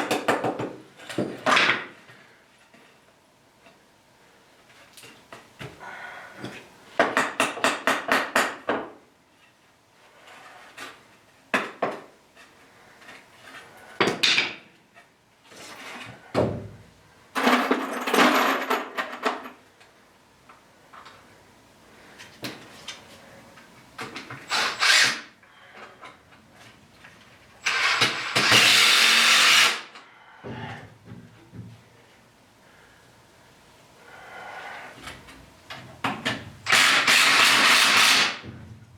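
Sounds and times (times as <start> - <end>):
knocks and handling of lumber: 16.0 - 16.8, 30.5 - 31.9
cordless drill driving screws: 24.5 - 25.3, 27.7 - 29.8, 36.7 - 38.4.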